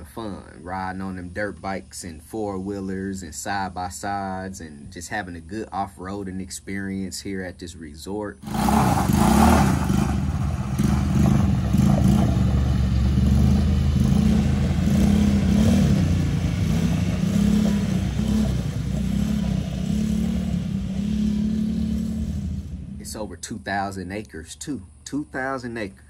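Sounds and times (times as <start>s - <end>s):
small engine revving: 8.4s - 23.4s.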